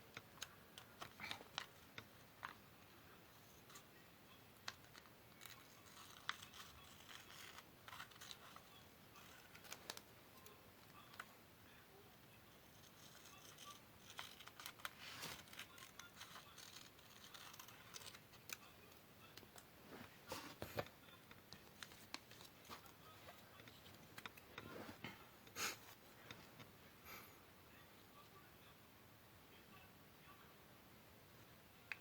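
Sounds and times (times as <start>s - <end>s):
paper rustling: 4.6s - 11.3s, 12.8s - 25.2s
scissors cutting card paper: 4.9s - 10.0s, 12.8s - 18.6s.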